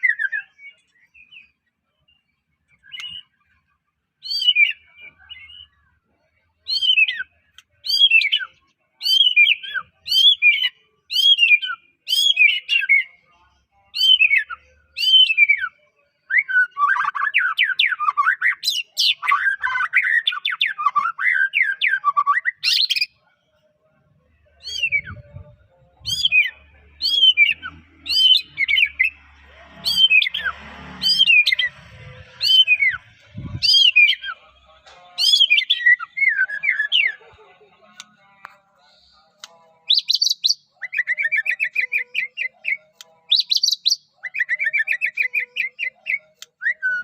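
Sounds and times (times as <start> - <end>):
bird whistling: 24.6 - 25.3, 26.1 - 29.2, 32.4 - 34.4.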